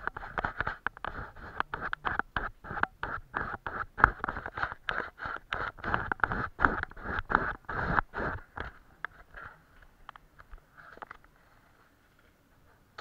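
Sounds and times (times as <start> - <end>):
paintbrush dabbing and stroking: 0.0 - 8.6.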